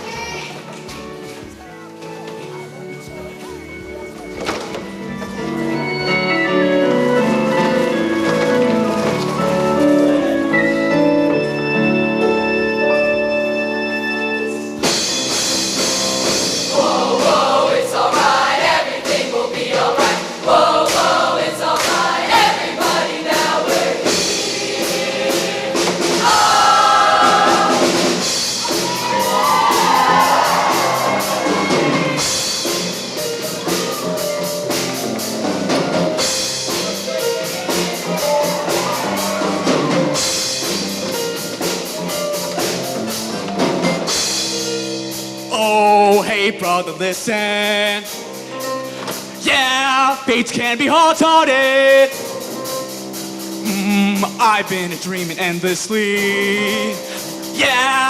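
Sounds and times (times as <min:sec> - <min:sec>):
keyboard chords: 0:00.0 - 0:50.0
drums: 0:00.0 - 0:58.0
live band playing: 0:00.0 - 0:58.0
choir singing: 0:16.6 - 0:32.5.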